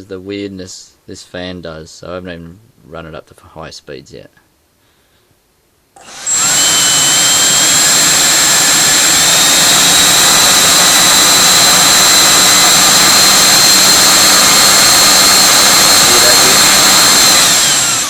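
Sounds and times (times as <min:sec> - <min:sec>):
electric fan whining: 0:06.0 - 0:18.0.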